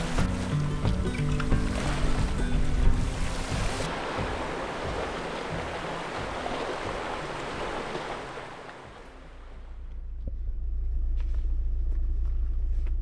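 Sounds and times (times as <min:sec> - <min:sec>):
sea waves washing on shore: 0:00.0 - 0:09.7.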